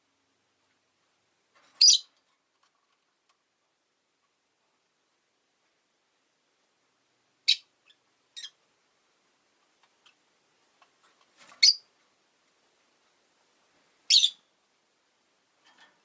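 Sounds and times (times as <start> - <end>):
lovebirds chirping: 1.8 - 2.2, 7.4 - 8.6, 11.5 - 11.9, 14.1 - 14.5.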